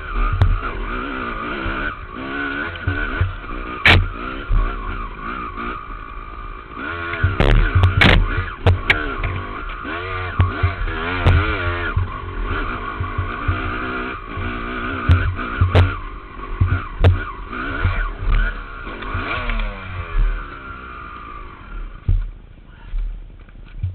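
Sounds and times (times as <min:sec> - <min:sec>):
dirt bike engine revving: 0:00.0 - 0:22.4
knocks and thumps: 0:02.8 - 0:04.6, 0:07.2 - 0:09.5, 0:10.4 - 0:12.2, 0:12.9 - 0:16.0, 0:16.6 - 0:19.3, 0:22.0 - 0:22.4, 0:23.0 - 0:23.9.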